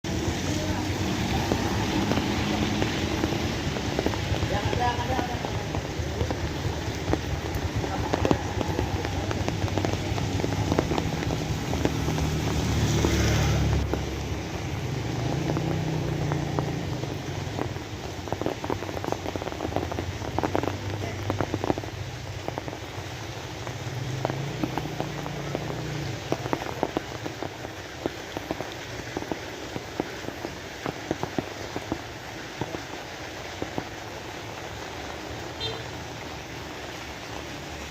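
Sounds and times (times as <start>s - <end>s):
drips and splashes: 0.0s - 37.9s
rain falling: 0.0s - 37.9s.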